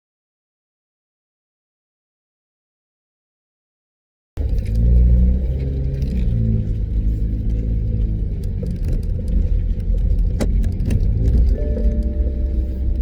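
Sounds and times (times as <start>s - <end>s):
car engine idling: 4.4s - 13.0s.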